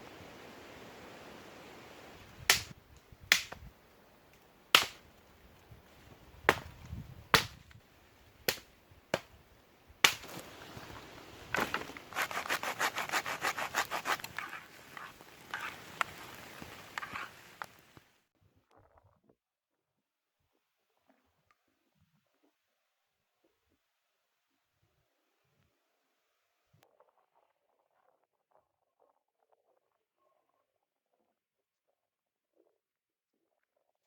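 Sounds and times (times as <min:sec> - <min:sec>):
wood chopping knocks: 0:04.8 - 0:05.0, 0:06.5 - 0:07.6
rapid sawing strokes: 0:11.6 - 0:15.8.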